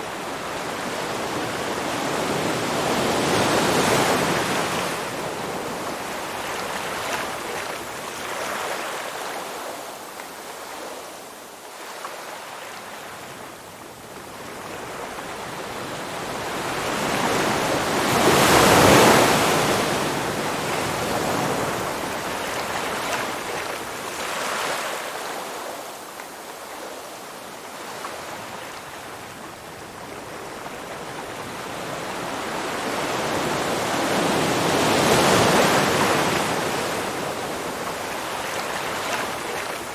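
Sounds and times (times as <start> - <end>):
ocean waves breaking: 15.7 - 25.9, 30.2 - 39.9.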